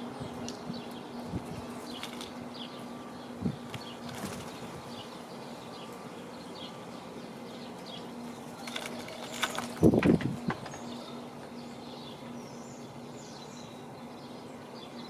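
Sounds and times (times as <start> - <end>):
small birds chirping: 0.0 - 15.0
bird wings flapping: 3.7 - 4.8, 8.6 - 10.8.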